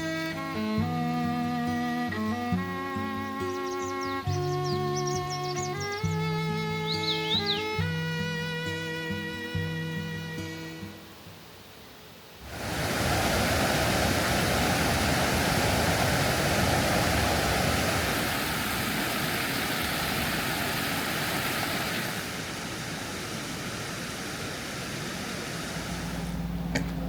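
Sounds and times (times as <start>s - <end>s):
mountain stream rushing: 12.2s - 27.0s.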